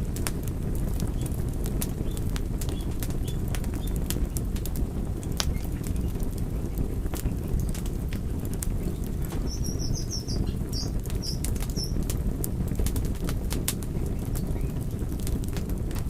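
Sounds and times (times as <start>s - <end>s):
fire crackling: 0.0s - 16.0s.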